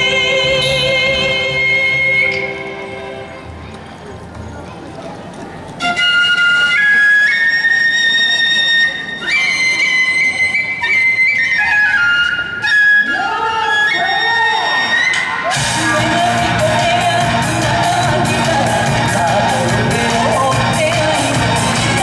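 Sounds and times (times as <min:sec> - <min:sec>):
flute melody: 0:05.8 - 0:22.0
person singing long sliding notes: 0:13.0 - 0:22.0.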